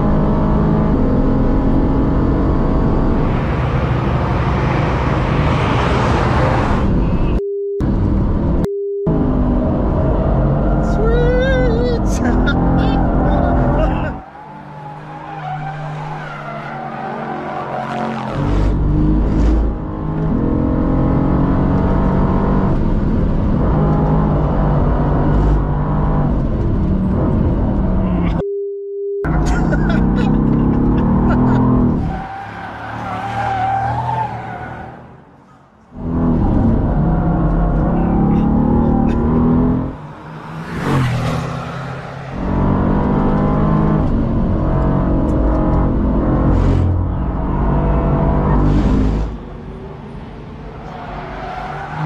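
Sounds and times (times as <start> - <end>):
sports car engine at speed: 0.0 - 28.5, 29.2 - 34.9, 35.9 - 52.0
censor bleeps: 7.3 - 7.9, 8.6 - 9.2, 28.4 - 29.3.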